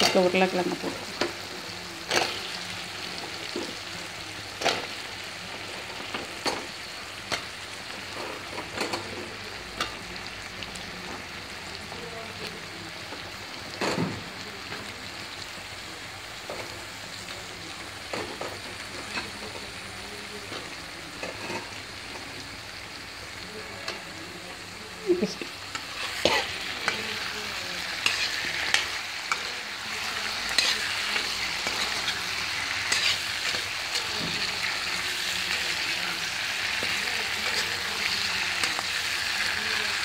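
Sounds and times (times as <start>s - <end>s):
potatoes sizzling in oil: 0.0s - 40.0s
metal spatula scraping a pan: 25.7s - 35.3s.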